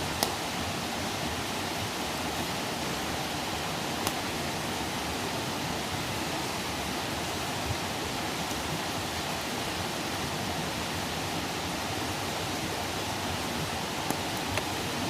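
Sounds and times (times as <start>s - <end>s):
campfire hissing: 0.0s - 15.0s
wood crackling pops: 0.1s - 0.4s, 4.0s - 4.3s, 14.0s - 14.7s.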